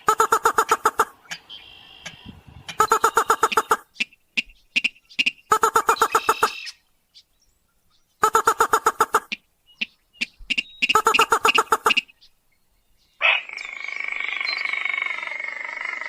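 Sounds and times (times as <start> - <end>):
rail bird calling: 0.0 - 16.0.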